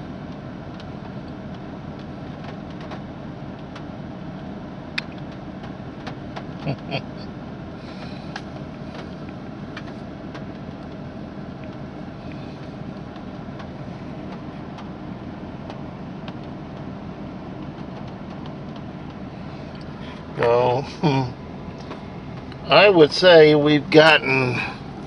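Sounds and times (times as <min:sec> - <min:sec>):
vehicle rumbling from inside cab: 0:00.0 - 0:25.0
faint rain ticks: 0:00.3 - 0:03.9, 0:11.6 - 0:15.0, 0:17.6 - 0:20.0.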